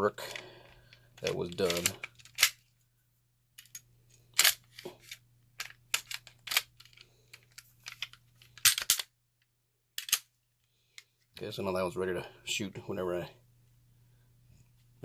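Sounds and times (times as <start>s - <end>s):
handgun parts clicking: 0.3s - 2.6s, 3.6s - 9.1s, 10.0s - 10.3s.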